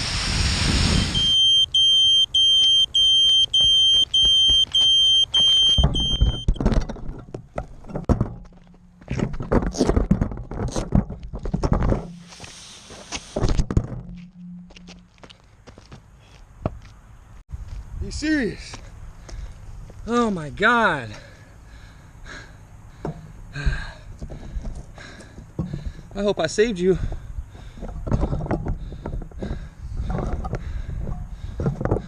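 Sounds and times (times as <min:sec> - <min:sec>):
electronic buzzer beeping: 0:00.9 - 0:06.6
thumps and knocks: 0:05.4 - 0:12.4, 0:13.4 - 0:15.1, 0:23.0 - 0:26.1, 0:27.7 - 0:32.0.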